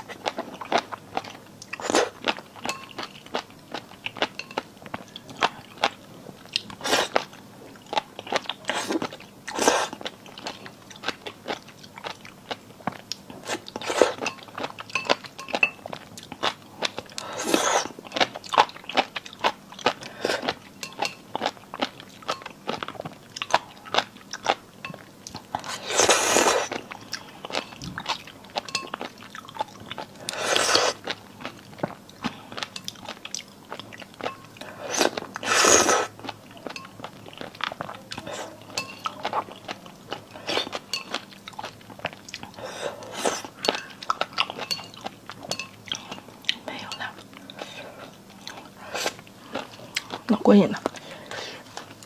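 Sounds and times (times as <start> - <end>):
wet chewing and crunching: 0.0 - 52.0
slurps: 34.8 - 36.1.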